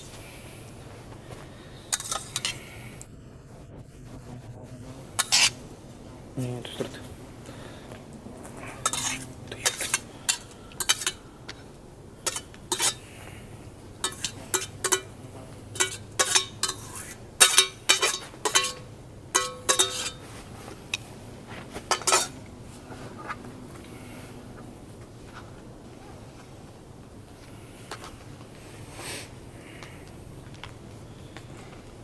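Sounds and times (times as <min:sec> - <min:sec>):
metal utensil clinking on cookware: 0:01.9 - 0:02.6, 0:05.2 - 0:05.6, 0:08.8 - 0:13.3, 0:13.9 - 0:21.1, 0:21.9 - 0:22.5.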